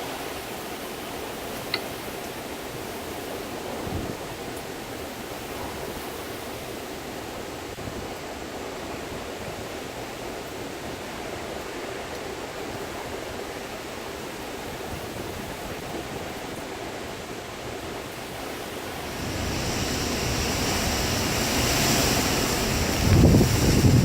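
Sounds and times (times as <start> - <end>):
wind buffeting microphone: 2.1 - 4.5, 18.1 - 24.0
wind rushing: 19.0 - 24.0.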